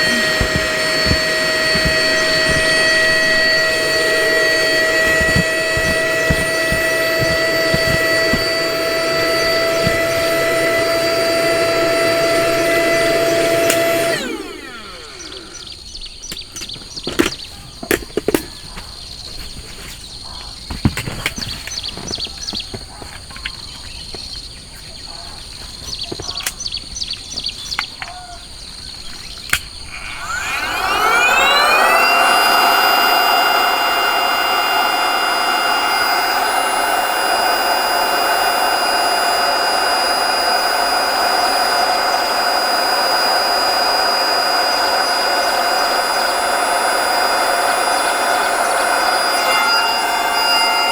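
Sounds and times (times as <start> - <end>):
clicks and handling knocks: 0.0 - 11.0, 16.3 - 20.0
small electric fan motor running: 0.0 - 16.2, 29.8 - 50.9.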